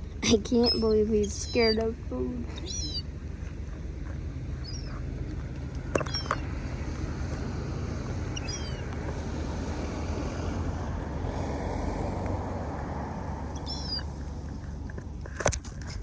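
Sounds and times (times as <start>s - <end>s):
low engine drone: 0.0s - 16.0s
high falling bird chirps: 2.5s - 3.2s, 4.6s - 5.0s, 5.9s - 6.8s, 8.1s - 9.0s, 13.5s - 14.1s.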